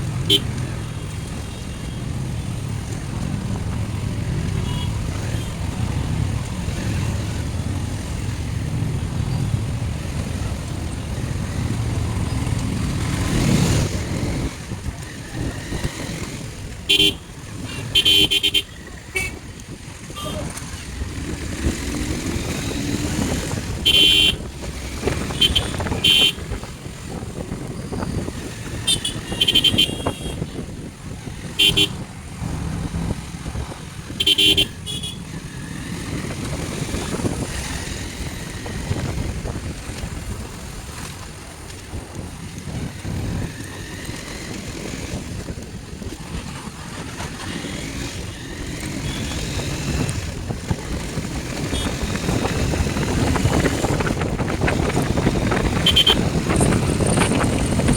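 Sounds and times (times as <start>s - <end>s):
motorcycle engine: 0.0s - 57.9s
vehicle horn toots: 4.6s - 5.5s, 16.9s - 19.4s, 23.8s - 24.5s, 25.2s - 26.4s, 28.8s - 30.6s, 31.6s - 32.0s, 34.2s - 35.2s, 49.0s - 49.5s, 51.7s - 52.0s, 55.8s - 56.2s
wind rumble: 18.7s - 57.9s.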